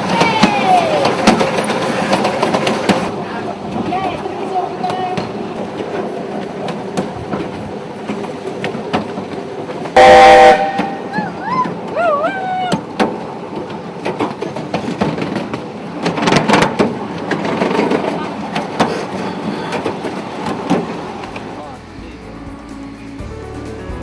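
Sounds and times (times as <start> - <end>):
train wheels clicking over track: 0.0 - 24.0
loud train whistle blast: 10.0 - 11.5.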